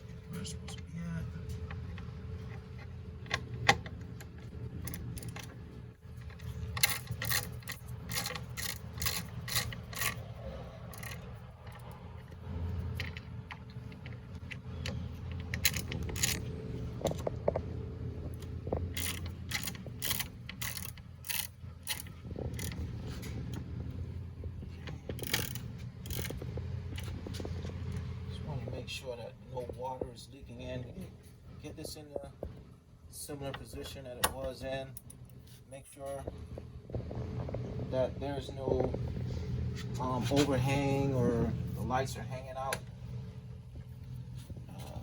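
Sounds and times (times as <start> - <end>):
ratchet wrench clicking: 6.3 - 11.3, 14.8 - 16.5, 18.9 - 22.8, 25.1 - 26.4.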